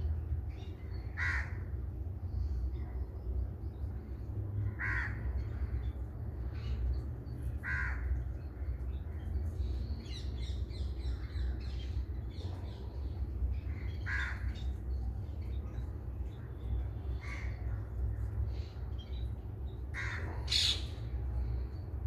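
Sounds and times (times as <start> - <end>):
harsh cawing bird calls: 1.1 - 1.8, 4.7 - 5.7, 7.5 - 8.2, 13.7 - 14.8, 19.9 - 21.0.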